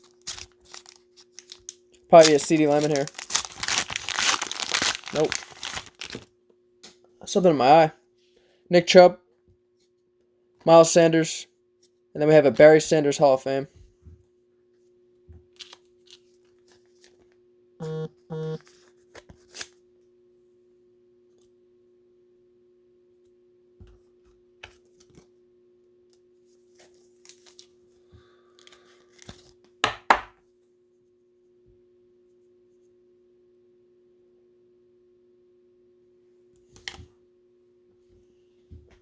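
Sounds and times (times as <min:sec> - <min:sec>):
packaging rustling and clicking: 0:00.0 - 0:06.3
wrapper ripping open: 0:00.0 - 0:06.3, 0:15.6 - 0:17.2.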